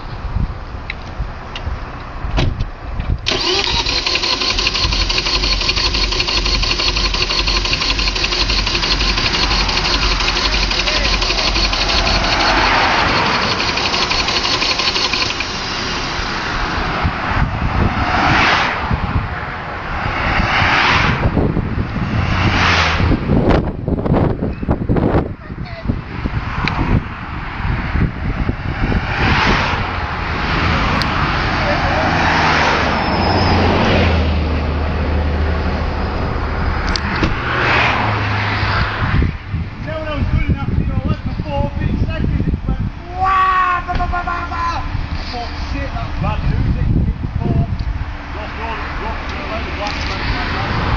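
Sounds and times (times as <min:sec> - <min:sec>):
car engine running hard: 0:03.2 - 0:20.0, 0:44.5 - 0:50.9
sharp ticks: 0:03.3 - 0:16.0.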